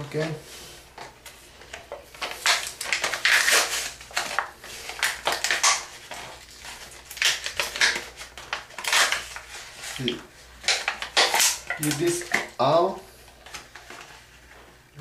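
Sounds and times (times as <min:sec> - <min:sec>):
package tearing and crinkling: 0:01.7 - 0:12.6.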